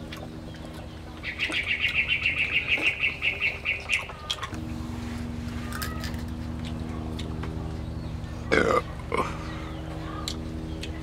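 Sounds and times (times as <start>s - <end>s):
low mechanical hum: 0.0s - 11.0s
bird chirping rapidly: 0.4s - 4.2s.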